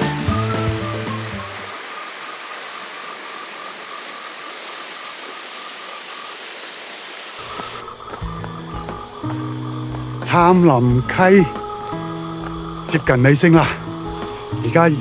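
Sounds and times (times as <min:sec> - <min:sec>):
background music: 0:00.0 - 0:01.7, 0:07.4 - 0:15.0
water rushing: 0:00.0 - 0:15.0.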